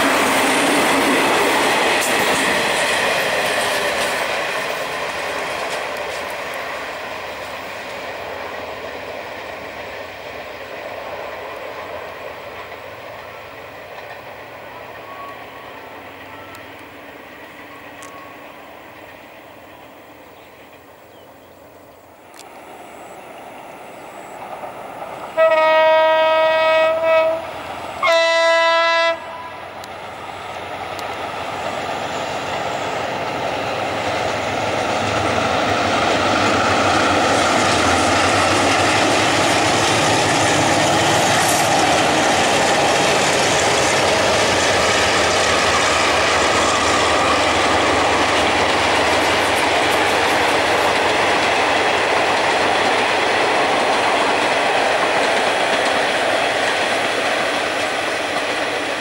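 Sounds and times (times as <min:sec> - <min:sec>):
clickety-clack over rail joints: 0:00.0 - 0:21.3, 0:22.2 - 0:59.0
train wheel and rail noise: 0:00.0 - 0:59.0
train horn blasts: 0:25.4 - 0:29.8.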